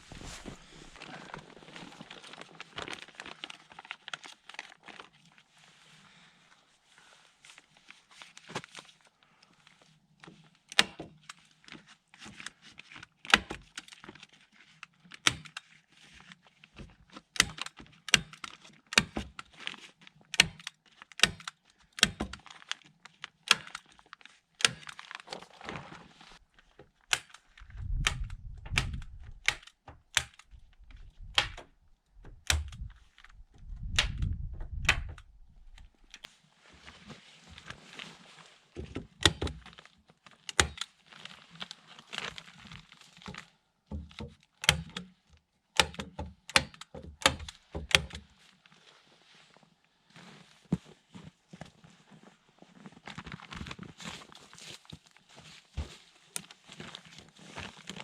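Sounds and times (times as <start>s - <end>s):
sharp irregular knocks and cracks: 16.8s - 19.5s, 20.3s - 22.8s, 24.6s - 25.6s, 26.6s - 36.3s, 38.8s - 39.9s, 40.5s - 40.9s, 42.2s - 48.3s.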